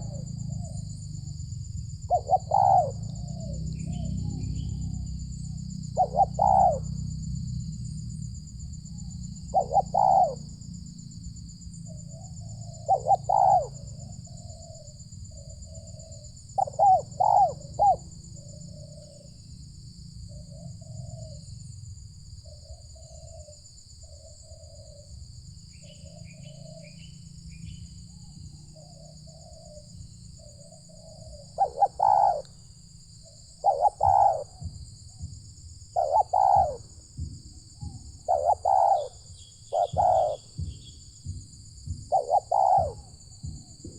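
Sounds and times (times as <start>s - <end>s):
doves cooing: 0.0s - 7.2s, 9.0s - 10.6s, 11.6s - 19.4s, 28.2s - 32.6s, 33.2s - 43.9s.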